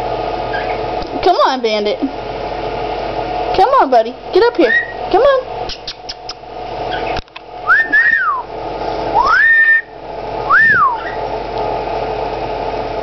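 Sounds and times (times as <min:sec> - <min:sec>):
steady hum: 0:00.0 - 0:13.0
bird whistling: 0:00.5 - 0:00.8, 0:04.7 - 0:05.0, 0:05.7 - 0:08.5, 0:09.1 - 0:11.2.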